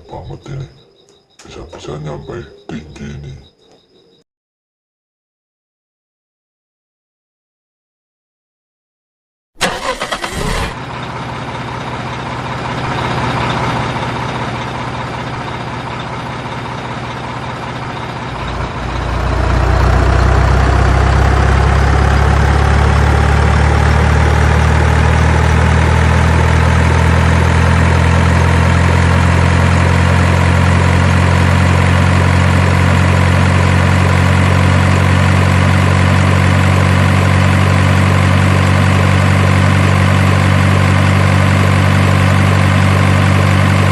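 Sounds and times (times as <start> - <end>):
truck engine cranking and idling: 9.6 - 43.9.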